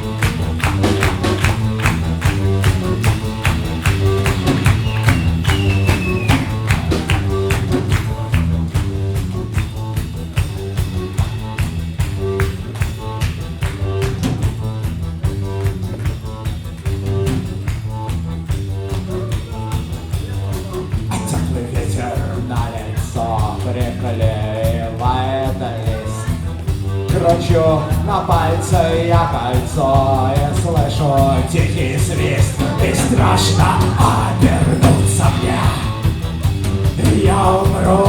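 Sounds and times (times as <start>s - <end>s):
drums keeping a steady beat: 0.0s - 38.0s
repeating bass line: 0.0s - 38.0s.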